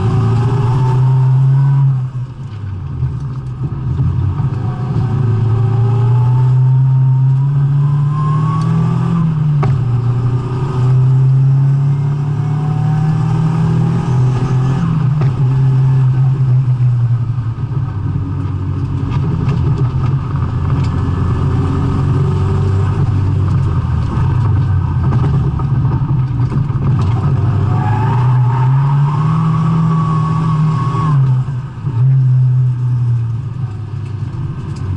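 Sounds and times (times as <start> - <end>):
car engine revving hard: 4.4 - 16.4, 27.1 - 32.9.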